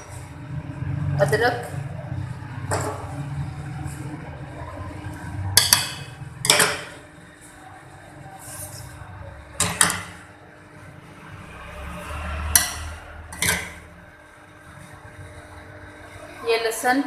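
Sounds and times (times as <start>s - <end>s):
low steady hum: 0.0s - 17.0s
spoon clinking on metal pot: 5.6s - 7.0s.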